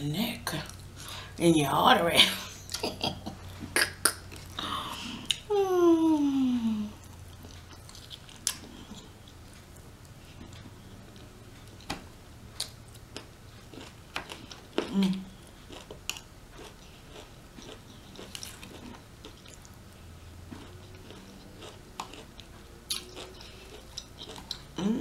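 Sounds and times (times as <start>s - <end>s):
chewing chicken: 2.6s - 5.5s, 6.9s - 11.9s, 12.5s - 25.0s
wet mouth clicks and smacks: 3.8s - 4.5s.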